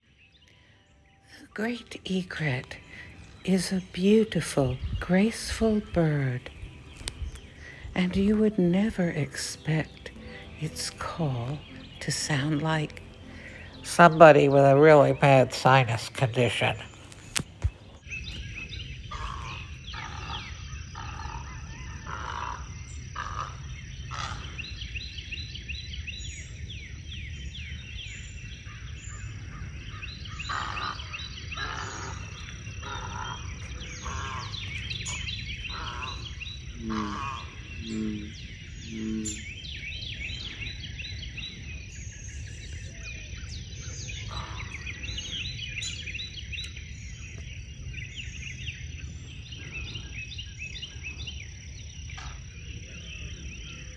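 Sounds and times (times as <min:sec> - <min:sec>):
high chirping: 0:00.5 - 0:19.4
egret giving harsh nasal croaks: 0:36.8 - 0:38.3.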